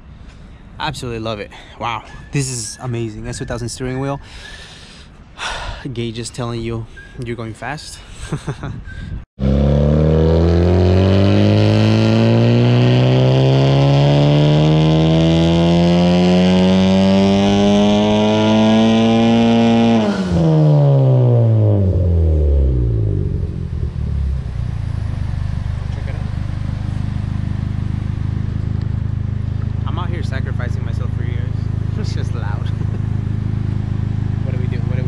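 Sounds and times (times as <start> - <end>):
car engine revving at full throttle: 9.4 - 35.0.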